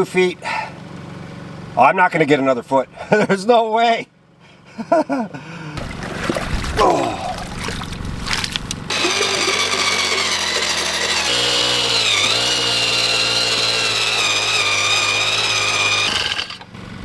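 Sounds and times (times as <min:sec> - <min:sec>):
earth auger boring: 0:06.7 - 0:17.0.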